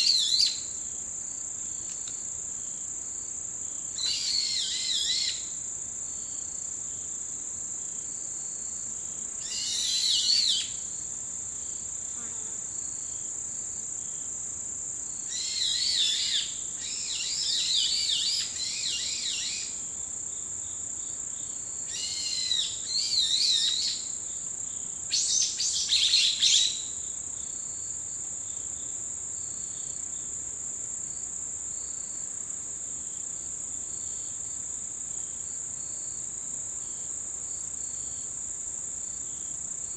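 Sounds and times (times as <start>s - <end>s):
insects trilling: 0.0s - 1.4s, 2.1s - 5.7s, 8.7s - 13.2s, 15.1s - 30.3s.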